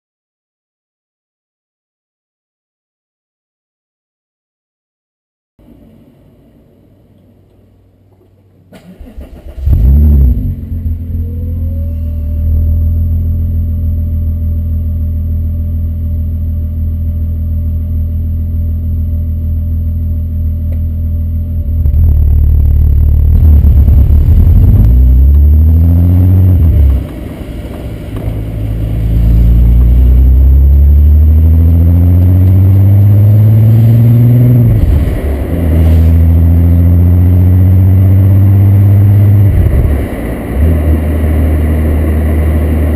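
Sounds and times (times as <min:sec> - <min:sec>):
car engine starting and idling: 0:05.6 - 0:42.9
car engine revving through gears: 0:09.1 - 0:11.1, 0:21.7 - 0:42.9.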